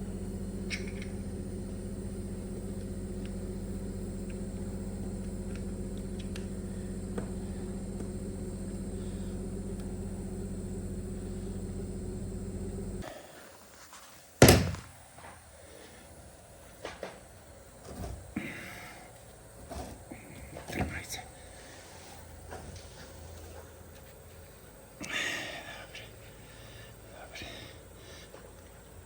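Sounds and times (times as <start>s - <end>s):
machine hum: 0.0s - 29.0s
loud thunk: 14.4s - 15.0s.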